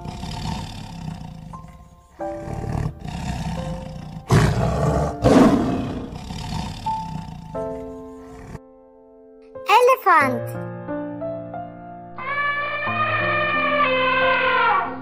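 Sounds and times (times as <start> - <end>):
tiger growling and roaring: 0.0 - 8.6.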